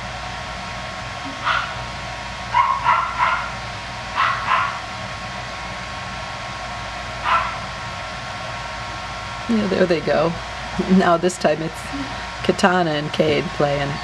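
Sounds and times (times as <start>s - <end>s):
steady background hum: 0.0s - 14.0s
puppies yipping: 1.3s - 1.8s, 2.6s - 3.6s, 4.2s - 4.8s, 7.1s - 7.6s.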